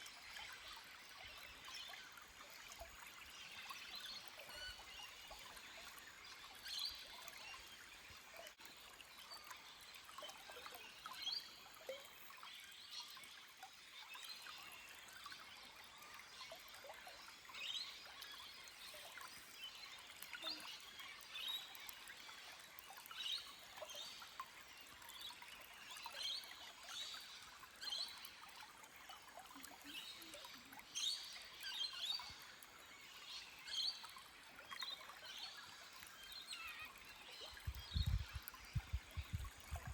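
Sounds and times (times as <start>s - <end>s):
stream flowing over rocks: 0.0s - 39.9s
birds chirping: 36.5s - 39.9s.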